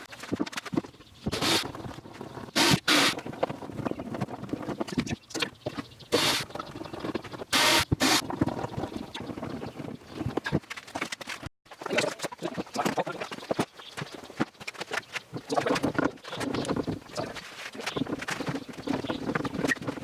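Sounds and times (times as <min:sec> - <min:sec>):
short hissing bursts: 0:01.3 - 0:01.7, 0:02.6 - 0:03.2, 0:06.2 - 0:06.4, 0:07.6 - 0:08.2.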